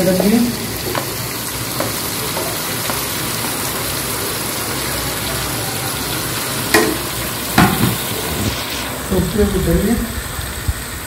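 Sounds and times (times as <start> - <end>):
food sizzling in oil: 0.0 - 11.0
sharp knock: 7.6 - 8.0.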